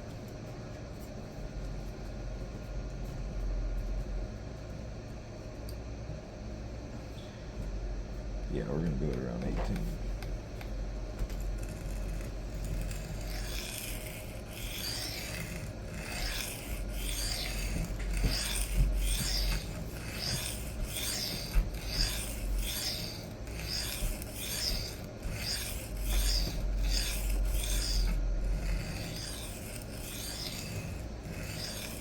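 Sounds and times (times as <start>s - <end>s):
knife scraping on sharpening plate: 11.6s - 32.0s.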